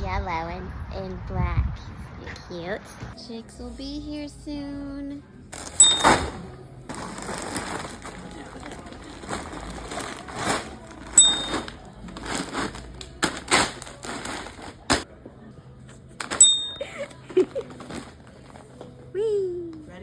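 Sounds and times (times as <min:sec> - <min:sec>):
rustling: 0:05.6 - 0:15.0, 0:15.9 - 0:19.0.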